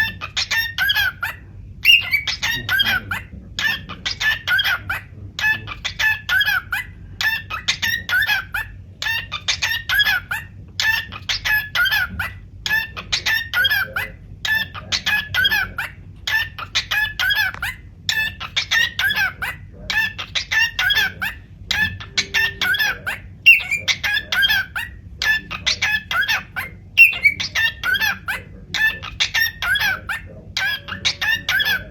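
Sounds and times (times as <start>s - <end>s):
cockatiel whistled chirps: 1.8s - 3.0s, 21.8s - 24.7s, 27.0s - 28.1s.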